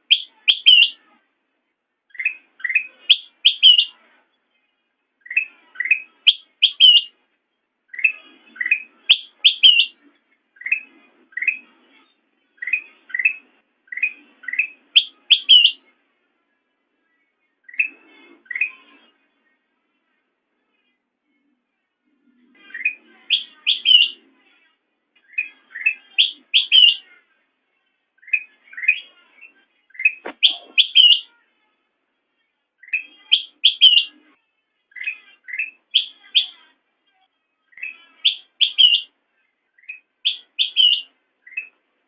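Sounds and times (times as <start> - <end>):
bulbul singing: 0.0 - 1.1, 2.1 - 4.0, 5.2 - 7.2, 7.9 - 10.0, 10.6 - 15.9, 17.6 - 19.0, 22.6 - 24.3, 25.2 - 27.2, 28.2 - 31.4, 32.8 - 34.3, 34.9 - 36.7, 37.7 - 41.8.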